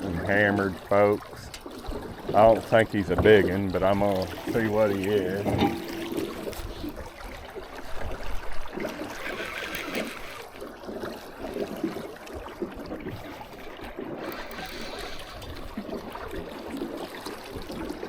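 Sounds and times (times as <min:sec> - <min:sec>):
river water moving: 0:00.0 - 0:18.0
handling knocks and rustles: 0:04.5 - 0:06.9.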